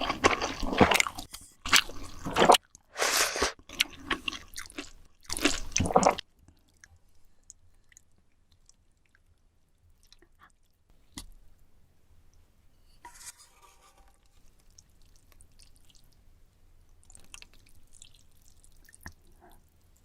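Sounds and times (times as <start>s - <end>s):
noodle slurping: 2.0s - 3.6s.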